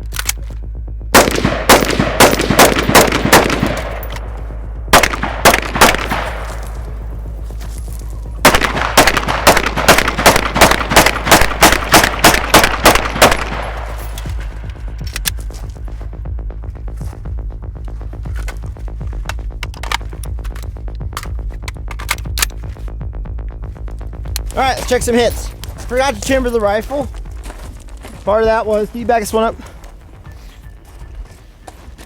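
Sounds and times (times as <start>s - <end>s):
rapid gunshots: 1.2s - 4.0s, 4.9s - 6.7s, 8.4s - 13.9s.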